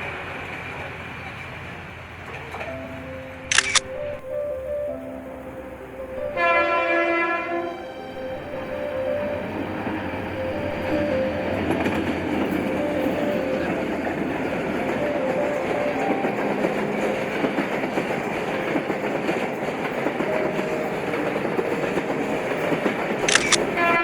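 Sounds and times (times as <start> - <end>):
train wheels rumbling on rails: 7.9 - 24.0.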